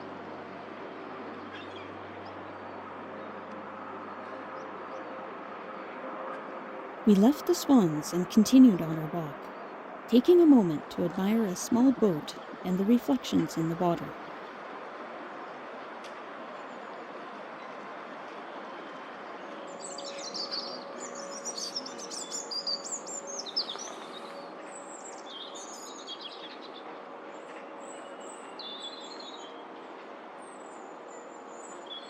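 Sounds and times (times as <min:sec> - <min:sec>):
steady background hum: 0:06.7 - 0:14.5.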